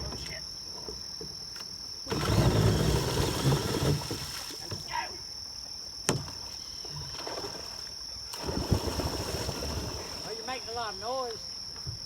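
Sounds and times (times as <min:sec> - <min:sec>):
insects buzzing: 0:00.0 - 0:12.0
water splashing and churning: 0:02.1 - 0:05.0, 0:07.0 - 0:11.4.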